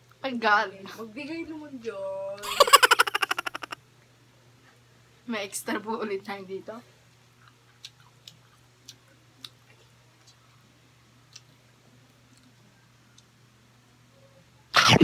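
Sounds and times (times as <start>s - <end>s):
low steady hum: 0.0s - 15.0s
person chewing: 7.4s - 10.6s, 11.3s - 11.5s.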